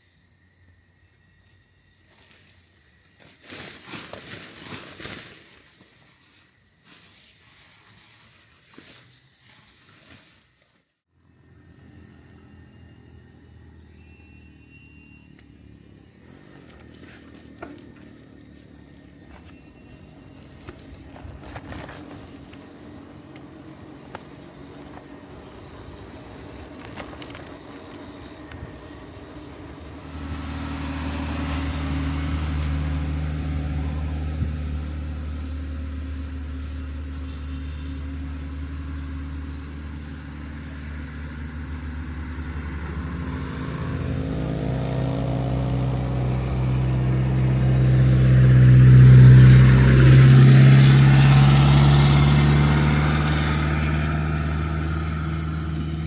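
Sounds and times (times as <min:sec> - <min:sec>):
thin high whine: 0:00.0 - 0:56.0
vehicle engine humming: 0:11.2 - 0:56.0.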